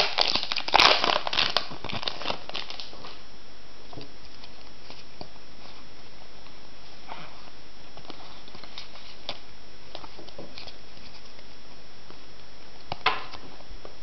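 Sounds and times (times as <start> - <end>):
cards crinkling and tapping: 0.0 - 3.1
steady hiss: 0.0 - 14.0.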